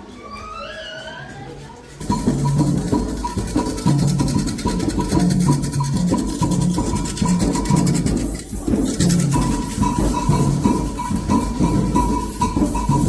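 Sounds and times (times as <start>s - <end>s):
shaker: 1.6s - 13.0s
hand drums in steady rhythm: 2.0s - 13.0s
high ringing bell strokes: 2.0s - 13.0s.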